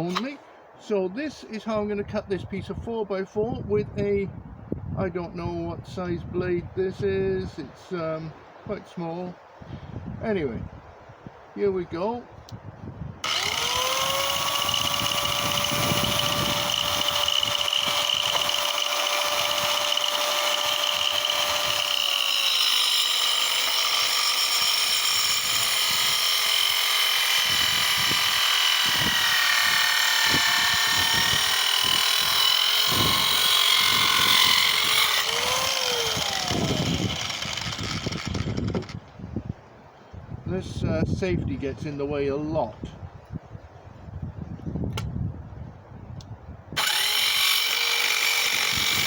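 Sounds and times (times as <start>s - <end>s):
circular saw cutting wood: 0.0s - 0.4s, 13.2s - 39.1s, 46.8s - 49.0s.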